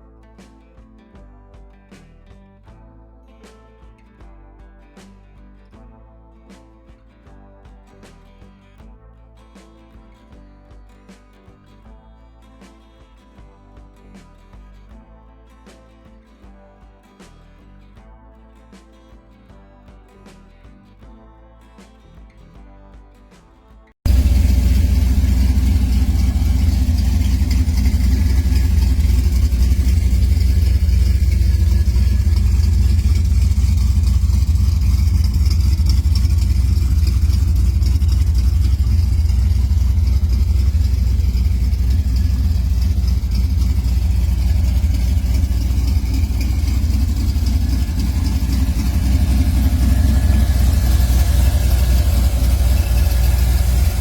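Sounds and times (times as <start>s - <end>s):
car engine rumbling: 24.1s - 54.0s.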